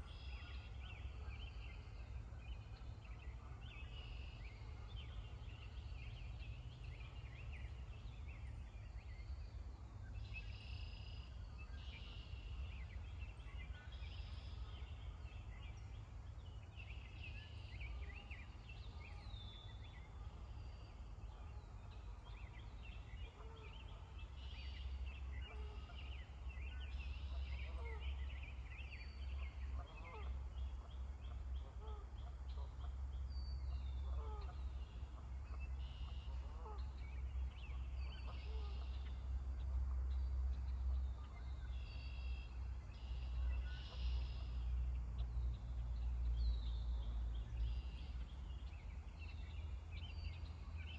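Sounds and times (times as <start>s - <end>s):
steady low rumble: 0.0s - 50.9s.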